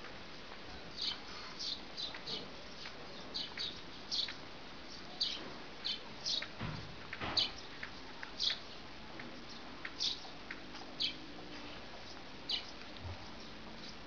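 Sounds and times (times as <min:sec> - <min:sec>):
steady outdoor hiss: 0:00.0 - 0:14.0
small birds chirping: 0:00.8 - 0:14.0.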